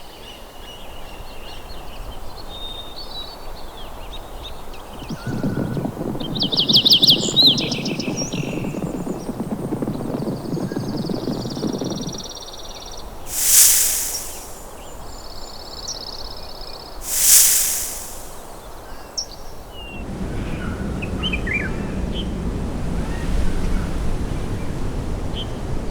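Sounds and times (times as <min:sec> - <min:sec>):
harsh hissing rasps: 0:13.3 - 0:14.6, 0:17.0 - 0:18.4.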